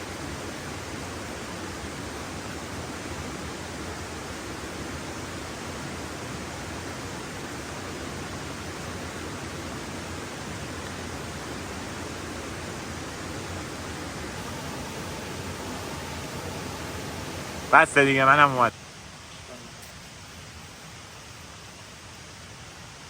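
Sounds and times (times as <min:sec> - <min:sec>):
steady rushing noise: 0:12.2 - 0:18.7.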